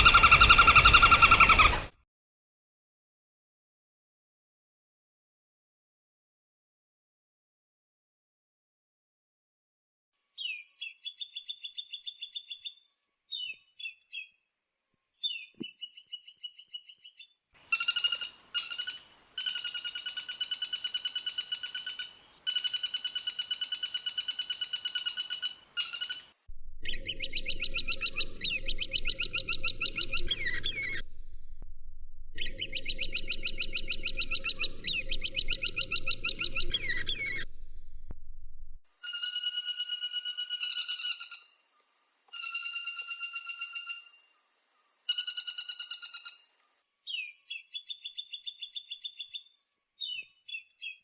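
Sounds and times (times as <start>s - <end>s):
woodpecker trills: 0.0s - 1.9s, 15.3s - 31.4s, 32.4s - 37.9s, 39.0s - 44.4s, 45.1s - 51.0s
low steady hum: 26.5s - 38.8s.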